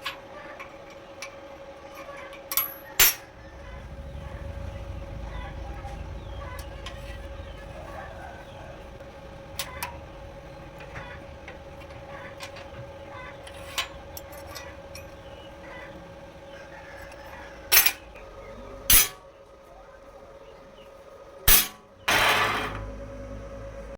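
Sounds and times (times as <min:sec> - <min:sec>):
faint steady hum: 0:00.0 - 0:23.9
metal parts clinking: 0:02.2 - 0:03.3, 0:17.7 - 0:18.0, 0:18.9 - 0:19.2
metal rattling clatter: 0:02.5 - 0:19.2.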